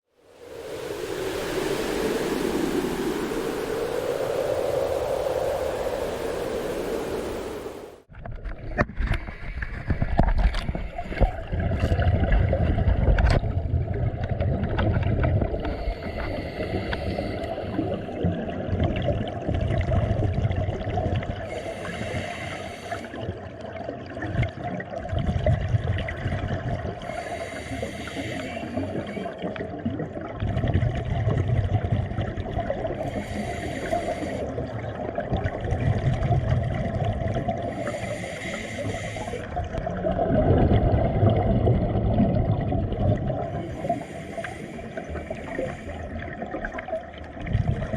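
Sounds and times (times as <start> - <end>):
water rushing: 0.1 - 8.1, 11.0 - 47.9
steady hum: 0.2 - 8.1
watery gurgling: 0.2 - 47.9.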